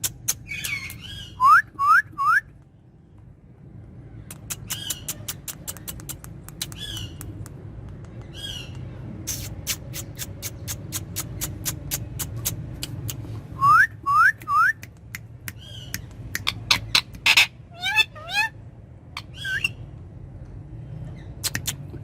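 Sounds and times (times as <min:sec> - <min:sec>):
parakeet chirps: 0:00.1 - 0:02.0, 0:04.3 - 0:07.4, 0:08.2 - 0:13.2, 0:15.5 - 0:18.6, 0:19.2 - 0:19.8
sharp clicks: 0:04.3 - 0:08.9.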